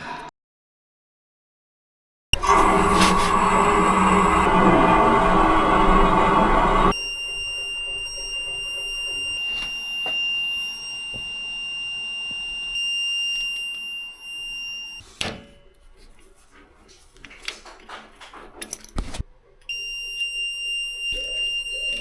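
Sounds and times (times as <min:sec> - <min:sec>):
high-pitched electronic alarm tone: 0:02.4 - 0:15.0, 0:19.7 - 0:22.0.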